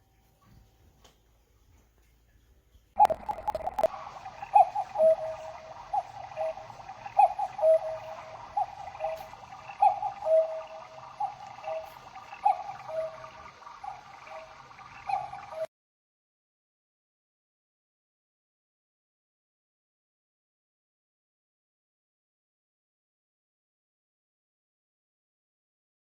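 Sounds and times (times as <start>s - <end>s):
sharp clicks: 3.0s - 3.9s
cuckoo clock calling: 3.0s - 15.7s.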